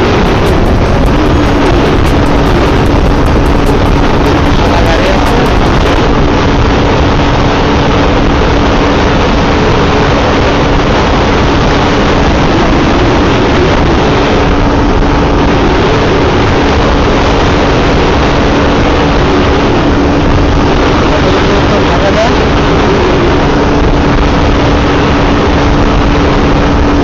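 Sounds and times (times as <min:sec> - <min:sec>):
motorcycle engine droning: 0:00.0 - 0:06.4
road noise: 0:00.0 - 0:06.9, 0:18.0 - 0:27.0
wind rushing over microphone: 0:00.0 - 0:27.0.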